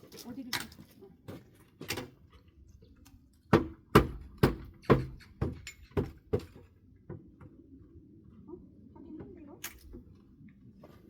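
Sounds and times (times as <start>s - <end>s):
hammer striking pallet wood: 3.5s - 6.5s.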